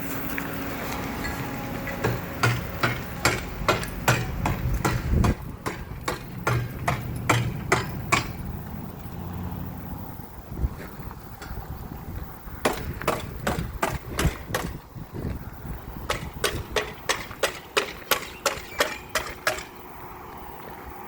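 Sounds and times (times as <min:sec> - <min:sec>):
hammer blows: 0:01.3 - 0:08.8, 0:16.0 - 0:19.8.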